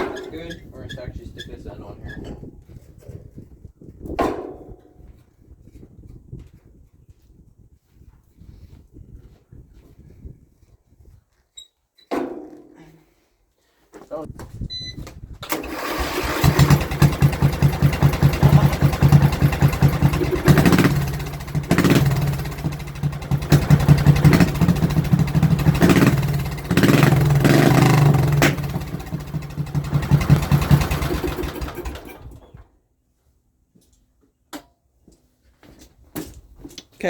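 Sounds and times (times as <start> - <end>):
small lawnmower engine running: 15.4 - 32.6.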